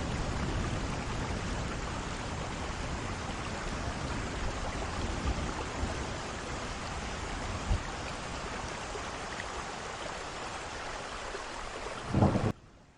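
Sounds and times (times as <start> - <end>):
heavy rain falling: 0.0 - 12.6.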